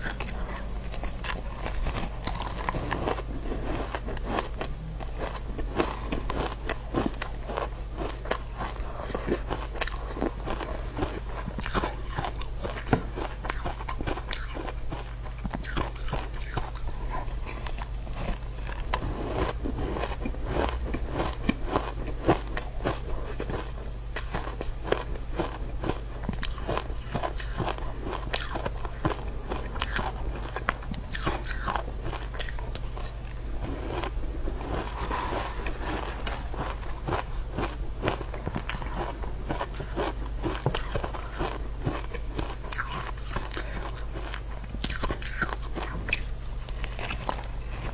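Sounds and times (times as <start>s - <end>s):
person crunching ice: 17.7s - 45.9s.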